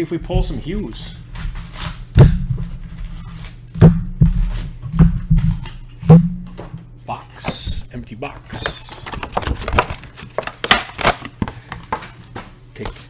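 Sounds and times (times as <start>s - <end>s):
cardboard box thumps and knocks: 0.2s - 6.8s.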